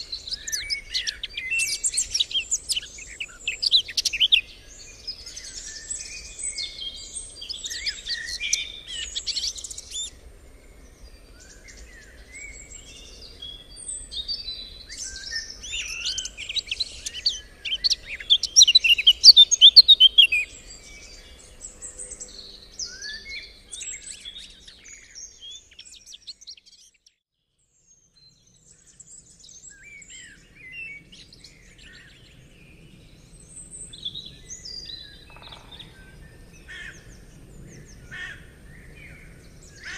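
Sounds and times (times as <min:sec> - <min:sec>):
songbirds chirping and singing: 0:00.0 - 0:27.2, 0:27.9 - 0:39.9.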